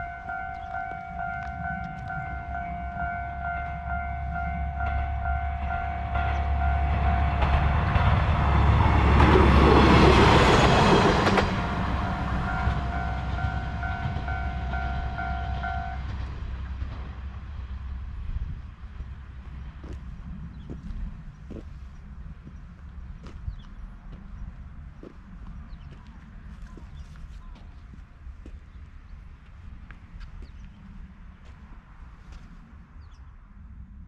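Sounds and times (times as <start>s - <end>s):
level crossing alarm tone: 0.0s - 8.3s, 11.6s - 16.1s
diesel railcar engine rumble: 0.0s - 34.0s.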